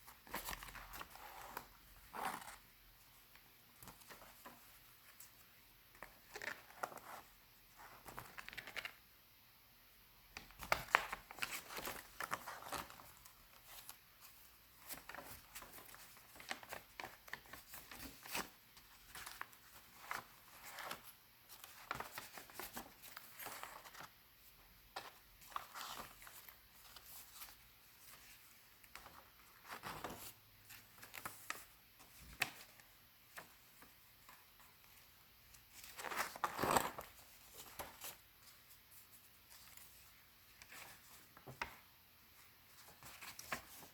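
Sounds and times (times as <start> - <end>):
paper pages turning: 35.8 - 38.2.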